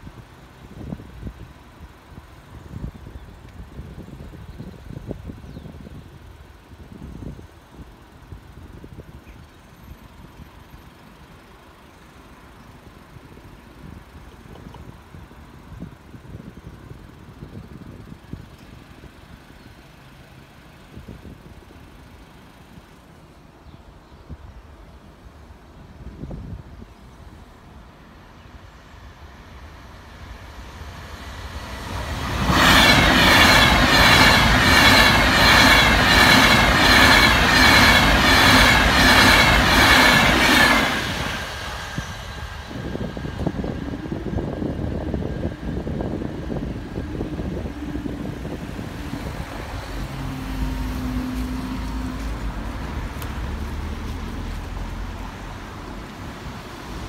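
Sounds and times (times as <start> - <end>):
electric train passing: 0.0 - 57.0
cars idling and pulling away: 5.8 - 24.1, 28.7 - 57.0
train wheels clattering over rails: 30.7 - 57.0.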